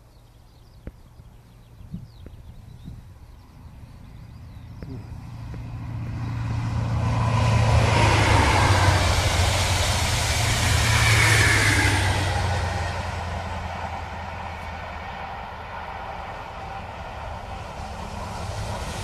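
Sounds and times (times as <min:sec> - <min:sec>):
diesel engine drone: 0:01.2 - 0:19.0
train wheels rushing on rail: 0:04.6 - 0:19.0.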